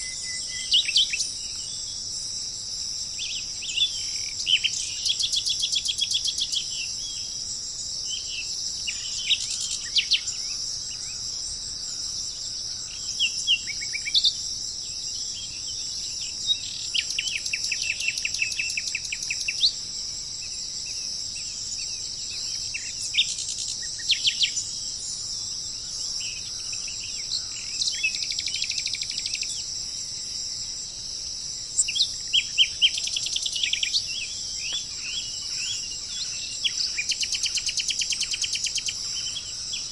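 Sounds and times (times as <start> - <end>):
insect drone: 0.0 - 39.9
birds chirping and trilling: 31.8 - 39.9.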